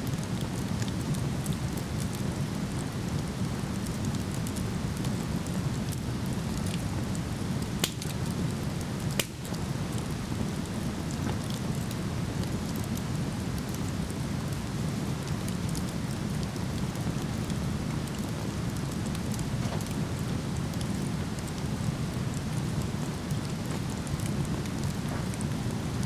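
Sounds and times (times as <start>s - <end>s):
campfire crackling and popping: 0.1s - 26.0s.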